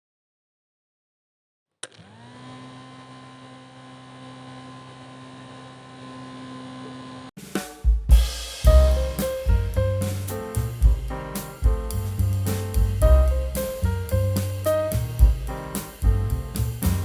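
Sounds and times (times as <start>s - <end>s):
music with drums: 7.4s - 17.0s.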